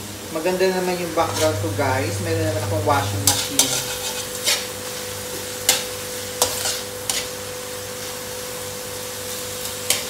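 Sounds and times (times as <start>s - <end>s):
pork sizzling in a wok: 0.0s - 10.0s
metal spatula scraping a pan: 1.2s - 5.0s, 5.6s - 7.4s.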